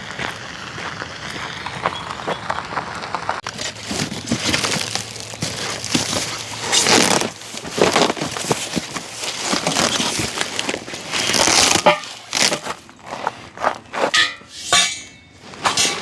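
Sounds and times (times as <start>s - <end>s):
cardboard being torn and crumpled: 3.4s - 13.2s.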